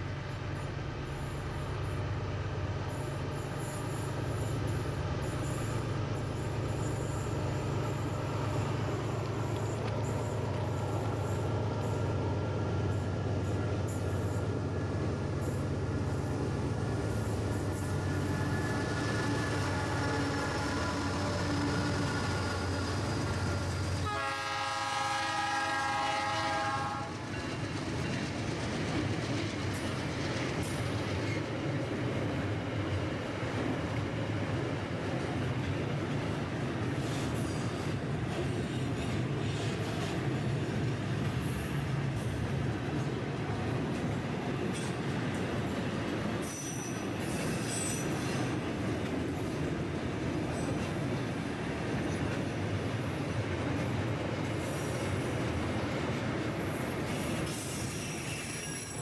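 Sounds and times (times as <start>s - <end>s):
train wheel squeals: 0.0s - 2.2s, 2.8s - 24.1s, 25.0s - 59.0s
train wagons rumbling on rails: 0.0s - 59.0s
train wheels clicking: 5.3s - 12.2s, 27.0s - 59.0s
train horn blast: 18.9s - 22.7s, 24.0s - 27.2s.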